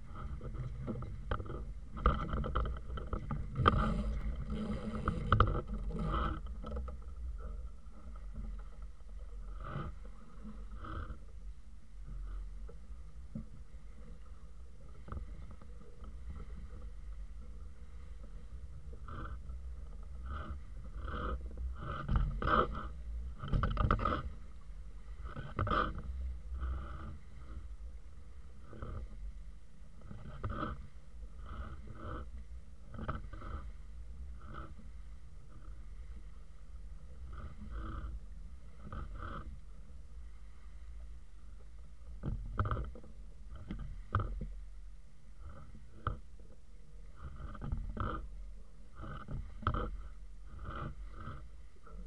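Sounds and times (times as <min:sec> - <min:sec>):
water splashing against hull: 0:00.0 - 0:11.2
steady low rumble: 0:00.0 - 0:52.0
water splashing along hull: 0:00.0 - 0:52.0
knocks and clatters from boat: 0:00.1 - 0:08.9, 0:19.1 - 0:24.3, 0:42.1 - 0:44.6, 0:45.5 - 0:46.2, 0:49.0 - 0:51.4.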